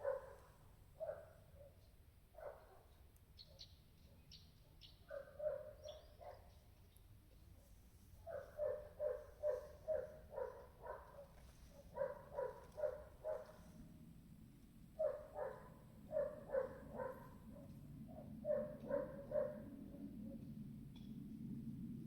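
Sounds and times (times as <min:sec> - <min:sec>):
dog barking: 0:00.0 - 0:01.8, 0:02.4 - 0:06.6, 0:07.6 - 0:13.8, 0:15.0 - 0:20.1.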